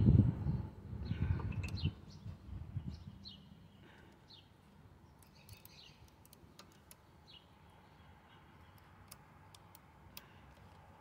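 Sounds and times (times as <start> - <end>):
faint bird chirps: 0.5 - 8.9.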